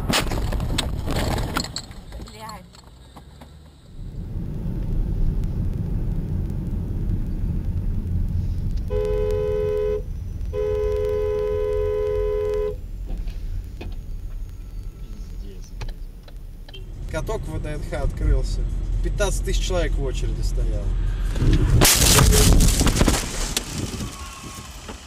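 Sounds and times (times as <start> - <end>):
car road and engine rumble: 0.0 - 25.0
two-note car horn: 8.9 - 12.8.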